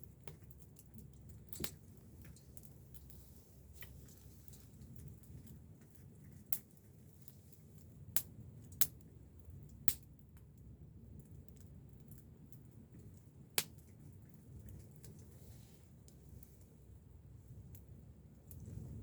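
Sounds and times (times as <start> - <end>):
campfire pops: 0.0 - 5.6, 6.4 - 6.7, 8.1 - 15.2
low steady fire rumble: 0.0 - 19.0.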